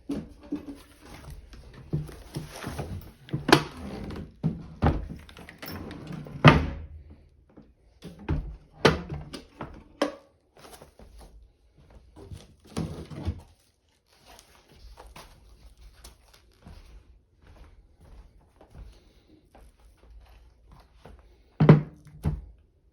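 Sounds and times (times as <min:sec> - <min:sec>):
rustling packing: 0:00.2 - 0:05.8, 0:10.6 - 0:11.4, 0:12.2 - 0:17.1.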